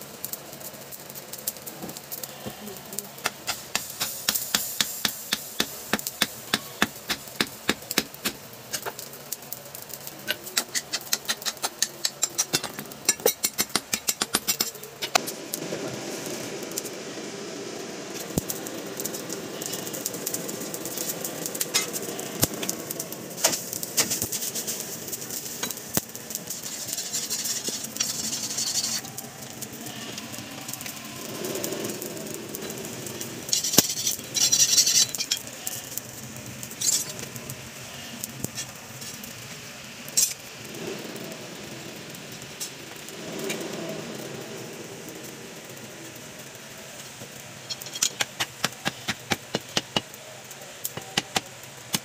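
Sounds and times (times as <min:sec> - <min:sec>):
steady mechanical noise: 0:00.0 - 0:52.0.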